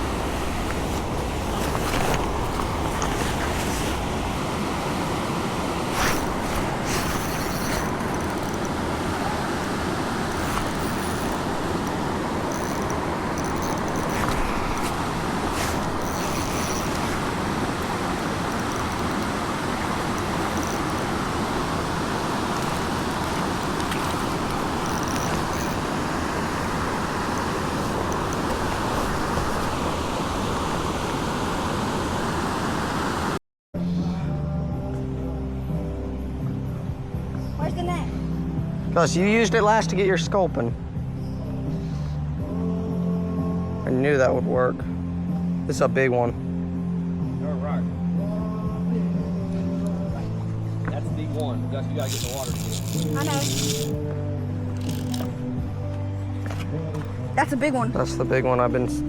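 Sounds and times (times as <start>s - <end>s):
stream water rushing: 0.0s - 33.4s, 47.9s - 59.0s.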